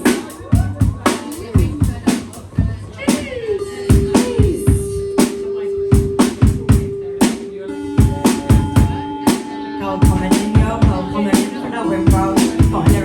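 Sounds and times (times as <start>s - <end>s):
drum kit playing a beat: 0.0s - 13.0s
music track with sustained notes: 6.9s - 13.0s.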